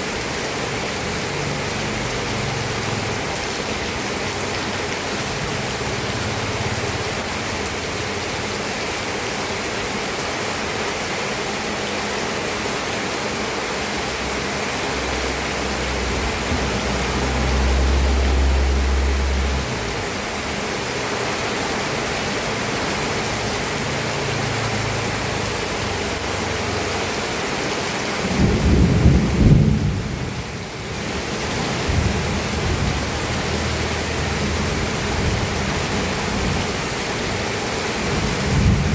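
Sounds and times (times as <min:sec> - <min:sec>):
rain falling: 0:00.0 - 0:38.9
thunder rumbling: 0:28.2 - 0:36.8, 0:37.9 - 0:38.9.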